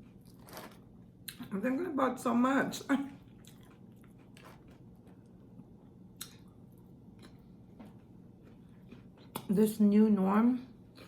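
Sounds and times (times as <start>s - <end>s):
person chewing food: 0.0s - 1.4s, 3.2s - 9.5s.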